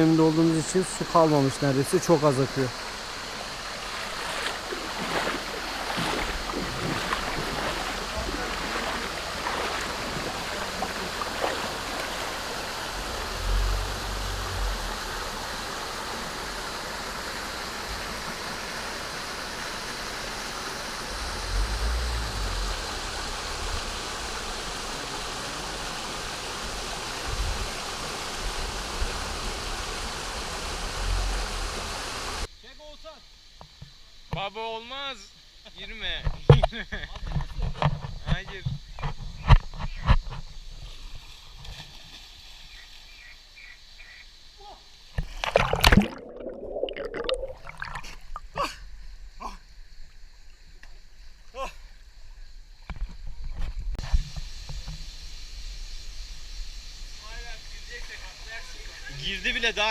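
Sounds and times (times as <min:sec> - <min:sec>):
water falling and splashing: 0:00.4 - 0:32.5, 0:45.2 - 0:48.6.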